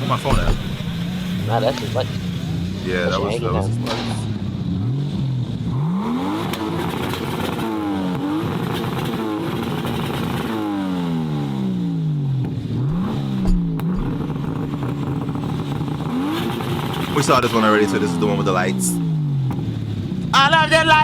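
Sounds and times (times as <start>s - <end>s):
car engine revving: 0.0s - 20.3s
low thump: 0.2s - 2.8s, 12.8s - 15.8s.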